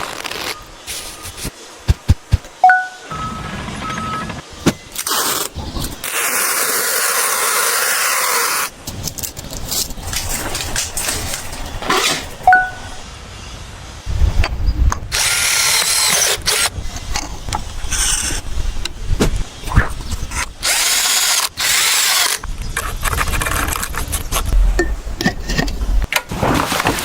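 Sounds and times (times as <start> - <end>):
power drill running: 20.6 - 22.4.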